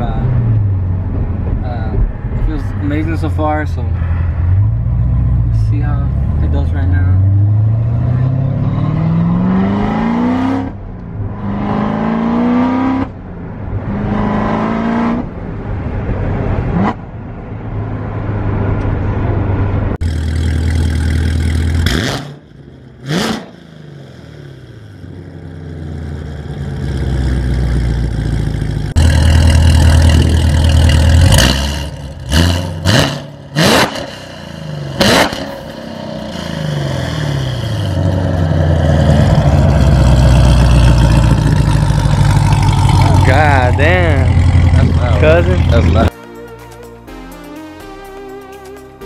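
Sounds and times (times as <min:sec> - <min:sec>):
car engine revving through gears: 0:06.2 - 0:10.8, 0:11.4 - 0:13.2, 0:13.8 - 0:15.4, 0:20.0 - 0:22.4, 0:23.0 - 0:23.6, 0:26.7 - 0:46.1
loud steady engine rumble: 0:15.2 - 0:46.2.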